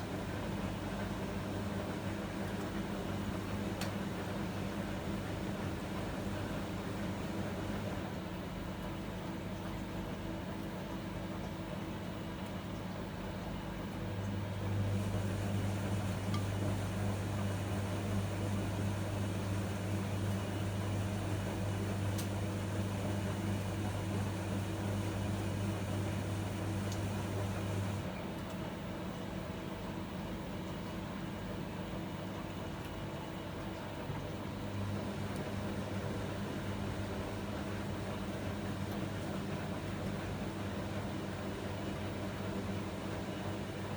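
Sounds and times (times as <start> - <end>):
washing machine humming: 0.0 - 43.9.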